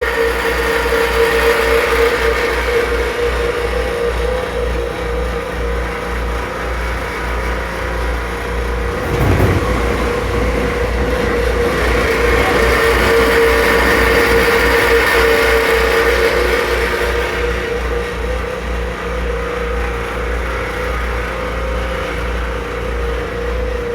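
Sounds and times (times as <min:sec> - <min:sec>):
ceiling fan hum and throbbing: 0:00.4 - 0:23.9
low thump: 0:08.7 - 0:13.0.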